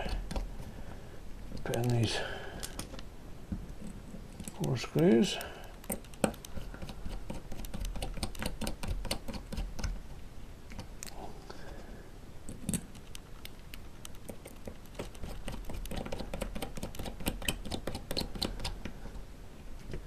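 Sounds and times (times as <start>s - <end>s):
screwdriver clicks and taps: 5.7s - 10.0s.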